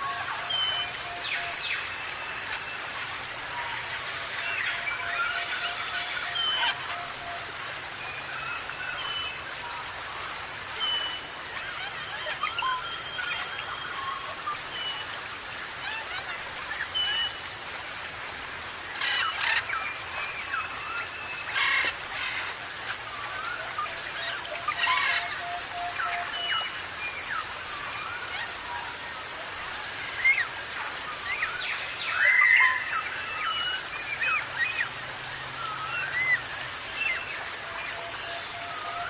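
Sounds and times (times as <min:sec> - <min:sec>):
parrots calling: 0:24.7 - 0:25.2.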